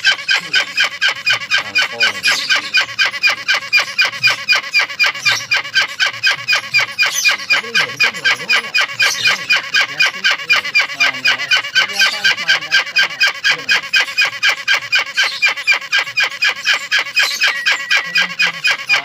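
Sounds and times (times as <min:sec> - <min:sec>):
bird chick calling: 0:00.0 - 0:19.0.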